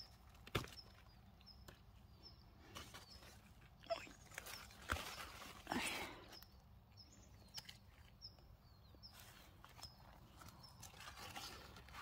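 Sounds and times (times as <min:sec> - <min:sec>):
small bird chirping: 0:00.0 - 0:05.5, 0:06.2 - 0:11.6
leaves rustling: 0:02.7 - 0:06.4, 0:09.1 - 0:12.0.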